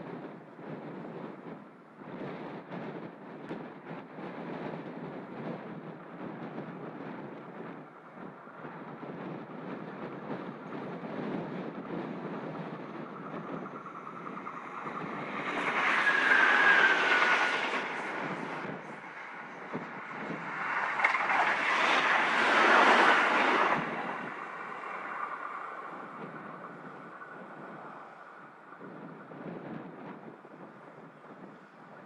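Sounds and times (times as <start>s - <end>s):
diesel railcars passing: 0.1s - 32.0s
falling whine: 11.8s - 29.6s.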